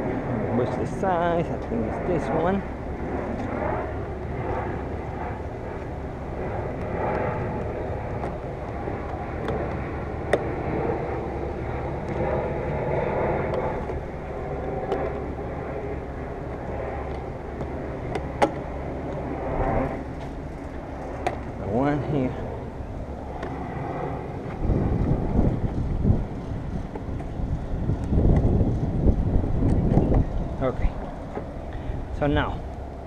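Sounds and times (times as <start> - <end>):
steady background rumble: 0.0 - 33.0.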